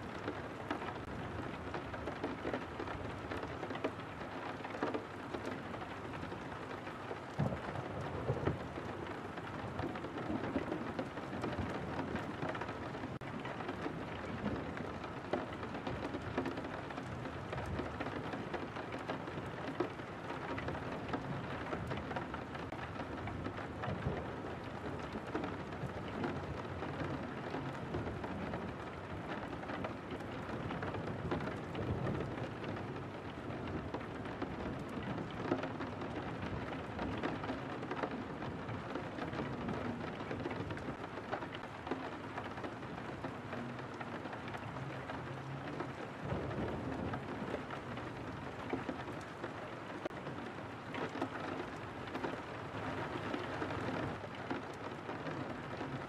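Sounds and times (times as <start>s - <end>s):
raindrops tapping on window: 0.0s - 56.0s.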